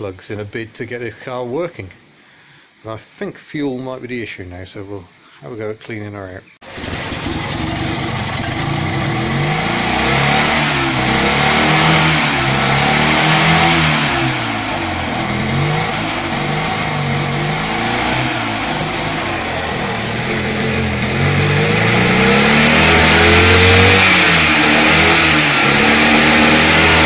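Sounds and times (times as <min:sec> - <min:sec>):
small engine running and revving: 0:06.8 - 0:27.0.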